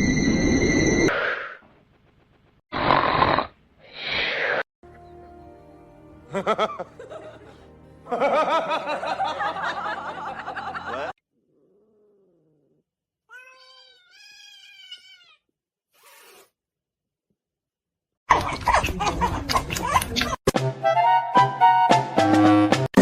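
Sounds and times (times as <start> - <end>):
cats yowling and meowing: 13.3 - 15.5.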